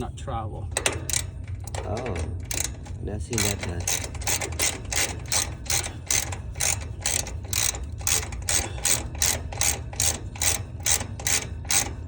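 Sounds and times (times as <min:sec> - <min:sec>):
ratchet wrench clicking: 0:00.8 - 0:12.0.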